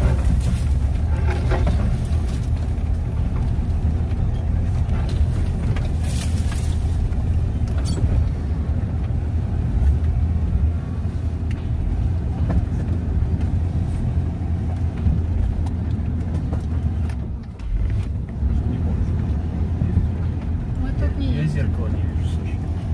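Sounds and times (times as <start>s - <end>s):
knocks and rattles: 0.0s - 8.3s
vehicle engine rumble: 0.0s - 22.9s.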